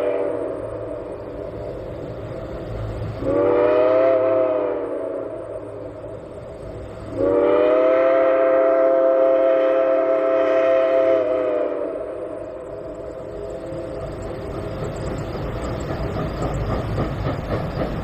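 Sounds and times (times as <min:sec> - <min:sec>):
steam locomotive whistle: 0:00.0 - 0:00.9, 0:03.2 - 0:05.9, 0:07.1 - 0:12.6.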